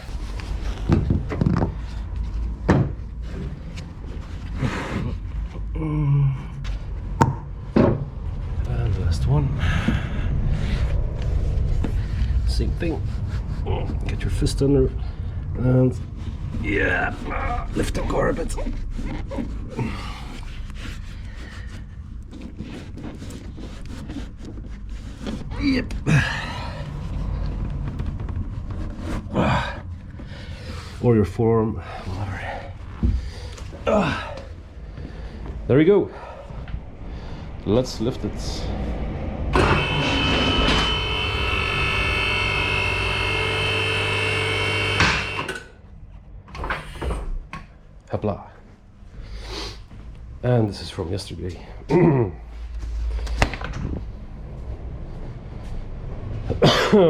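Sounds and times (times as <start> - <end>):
steady low hum: 0.0 - 57.0
car lift electric motor whining: 39.5 - 45.8.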